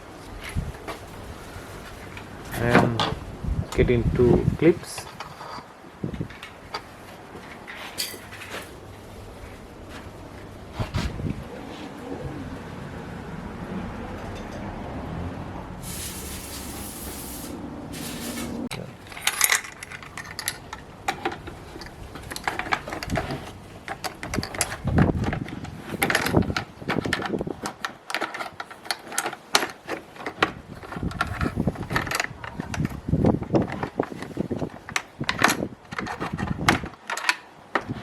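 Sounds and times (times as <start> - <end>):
brief hiss: 15.8 - 18.7
hand tools and parts clicking: 16.2 - 38.0.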